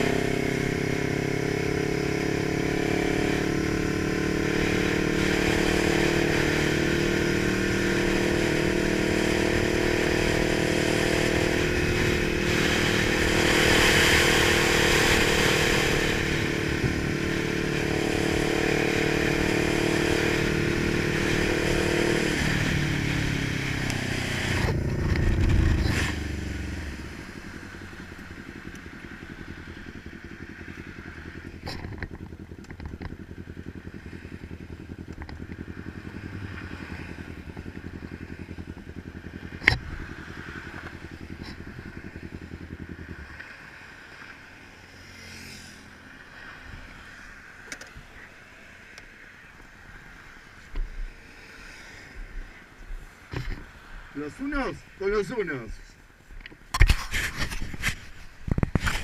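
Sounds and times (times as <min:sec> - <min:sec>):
motorcycle engine running: 0:00.0 - 0:51.3, 0:52.1 - 0:59.0.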